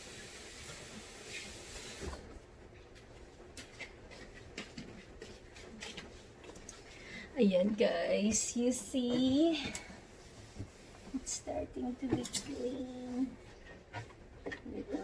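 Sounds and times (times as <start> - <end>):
water running from a tap: 0.0 - 2.2.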